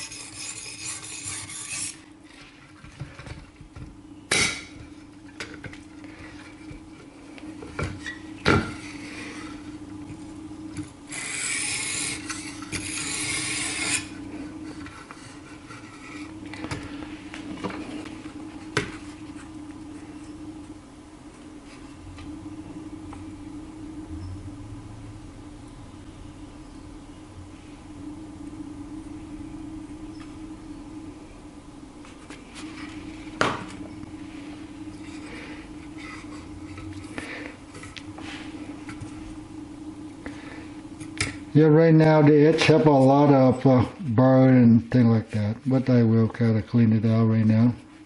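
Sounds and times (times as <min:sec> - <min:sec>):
knife scraping on sharpening plate: 0:00.0 - 0:02.0, 0:11.1 - 0:14.1
low hum: 0:00.0 - 0:48.0.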